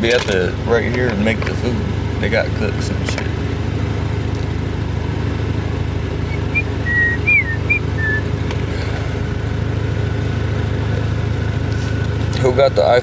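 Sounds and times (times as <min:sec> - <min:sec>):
car engine hum inside cabin: 0:00.0 - 0:13.0
high whistle-like chirps: 0:06.2 - 0:08.3.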